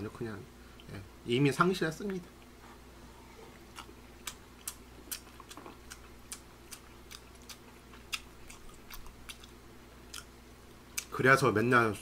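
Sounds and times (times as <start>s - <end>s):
low steady hum: 0.0s - 12.0s
chewing with wet mouth clicks: 3.6s - 10.3s.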